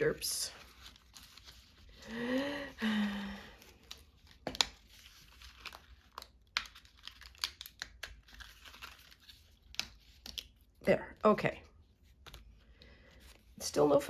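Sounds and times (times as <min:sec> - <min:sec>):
paper rustling and crinkling: 0:00.0 - 0:02.3, 0:03.4 - 0:10.8.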